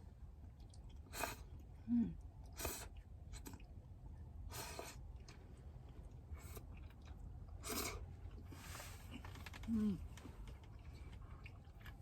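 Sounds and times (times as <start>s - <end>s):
low steady rumble: 0.0s - 12.0s
person slurping noodles: 7.6s - 8.0s.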